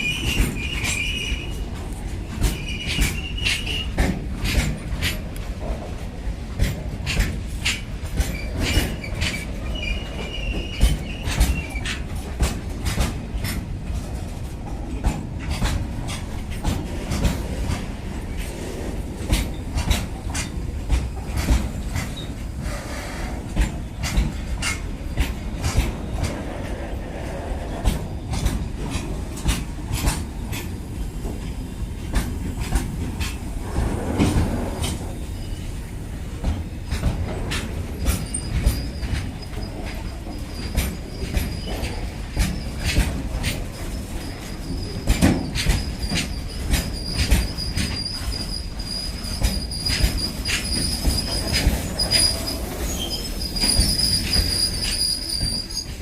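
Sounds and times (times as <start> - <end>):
wheel squeal: 0.0 - 1.6, 2.4 - 4.0, 8.3 - 12.0, 34.8 - 35.8, 38.0 - 43.0, 43.7 - 56.0
train rumbling past: 0.0 - 56.0
wheels clacking over rail joints: 0.0 - 56.0.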